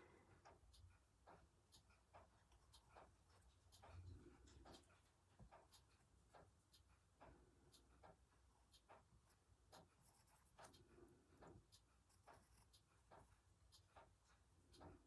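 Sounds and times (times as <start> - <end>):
pencil scratching on paper: 9.9 - 10.8, 12.0 - 13.3.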